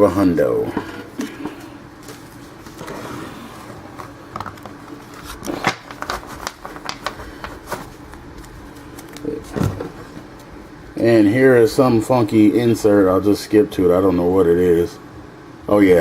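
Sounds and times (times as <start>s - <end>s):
cards clicking and rustling: 3.9s - 9.4s.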